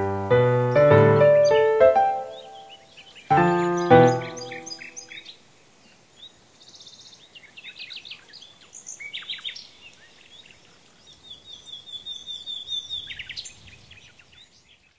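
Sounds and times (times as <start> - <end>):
songbirds chirping: 0.0 - 14.9
rapid bird trill: 0.6 - 5.2.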